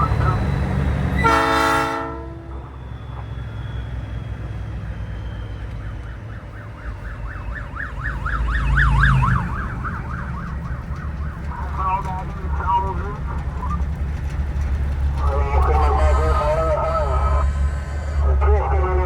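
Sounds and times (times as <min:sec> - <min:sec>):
emergency siren yelping: 0:00.0 - 0:13.9
truck engine rumble: 0:00.0 - 0:19.0.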